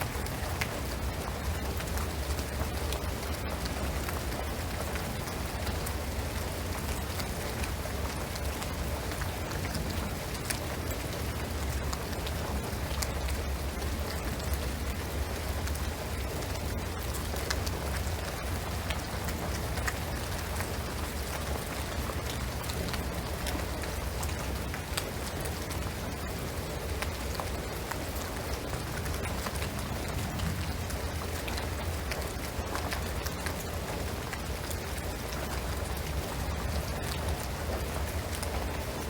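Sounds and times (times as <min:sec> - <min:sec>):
rain pattering on roof and trees: 0:00.0 - 0:39.0.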